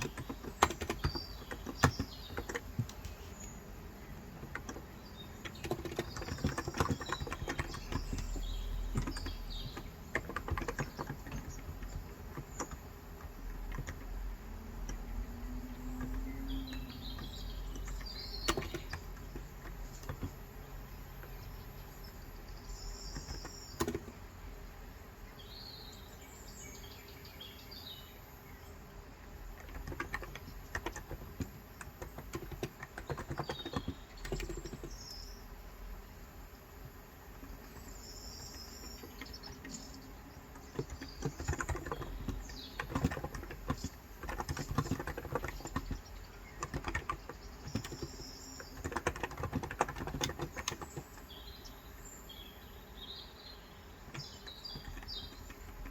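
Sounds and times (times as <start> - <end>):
typing on a keyboard: 0.0 - 24.2, 29.2 - 35.3, 37.3 - 52.1, 54.0 - 55.9
birds chirping: 0.0 - 55.9.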